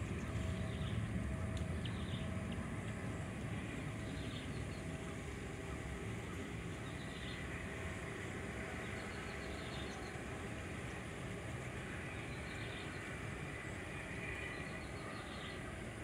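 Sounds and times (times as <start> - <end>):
steady low rumble: 0.0 - 9.3.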